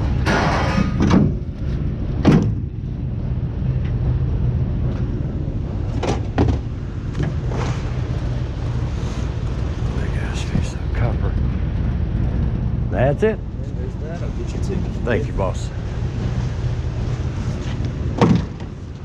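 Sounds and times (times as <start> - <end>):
steady low hum: 0.0 - 19.0
scrap metal clanking: 0.2 - 1.2.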